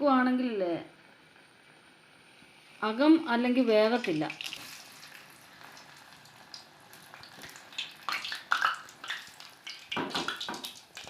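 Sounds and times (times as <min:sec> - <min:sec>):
fritters sizzling in hot oil: 0:00.0 - 0:11.0
oil crackling: 0:02.4 - 0:11.0.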